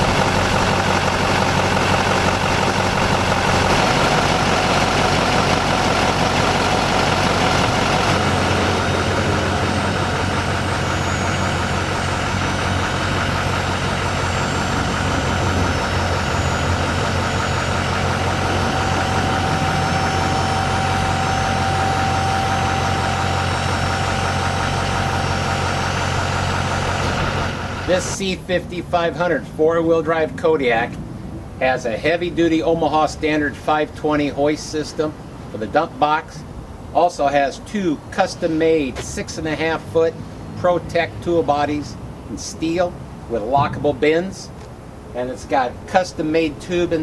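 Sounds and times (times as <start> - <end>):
diesel truck engine idling: 0.0 - 36.9
faint steady whine: 0.0 - 40.8.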